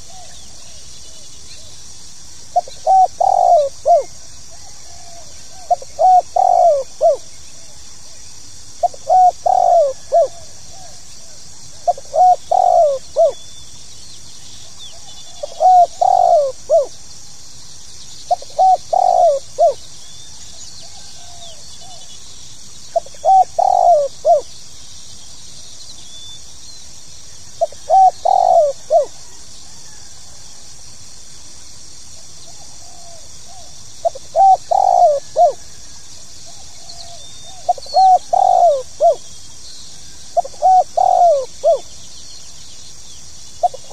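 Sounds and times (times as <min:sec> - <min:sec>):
dove cooing: 0:00.0 - 0:01.7, 0:02.5 - 0:08.2, 0:08.8 - 0:13.4, 0:14.6 - 0:17.0, 0:18.3 - 0:19.8, 0:22.9 - 0:24.5, 0:27.6 - 0:30.5, 0:32.5 - 0:35.8, 0:36.4 - 0:39.3, 0:40.3 - 0:42.0, 0:43.6 - 0:43.9
steady high hiss: 0:00.0 - 0:43.9.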